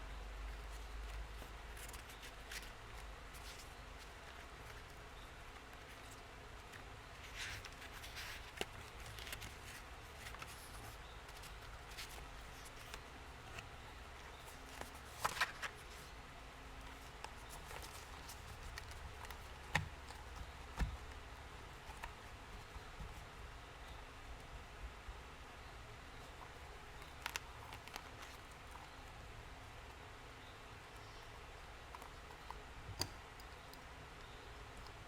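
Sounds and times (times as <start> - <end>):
low background hum: 0.0 - 35.0
paper rustling: 5.6 - 16.1, 16.9 - 21.2.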